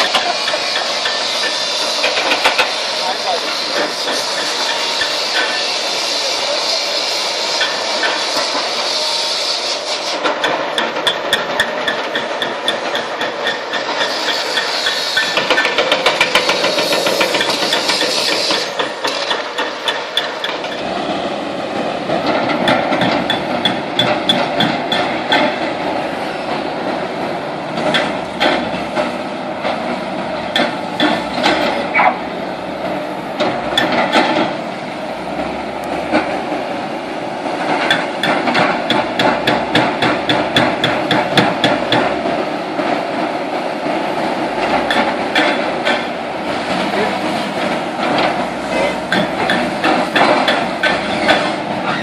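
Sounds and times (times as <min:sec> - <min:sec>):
excavator engine running: 0:00.0 - 0:52.0
hydraulic breaker hammering concrete: 0:10.2 - 0:14.1, 0:15.2 - 0:20.8, 0:37.9 - 0:42.2.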